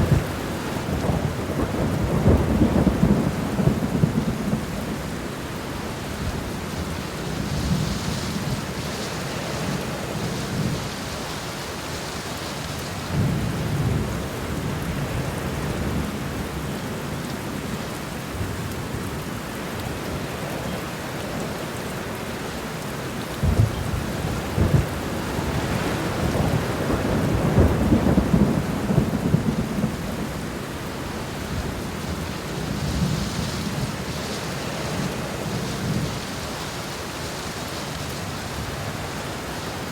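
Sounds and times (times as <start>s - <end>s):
thunder rumbling: 0.0s - 5.2s, 23.3s - 36.6s
steady rain: 0.0s - 39.9s.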